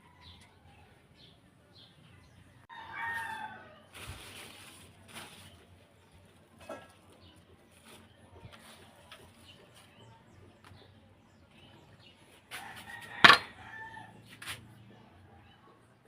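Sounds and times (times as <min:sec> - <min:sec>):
rooster crowing: 0:02.7 - 0:03.8, 0:12.6 - 0:14.2.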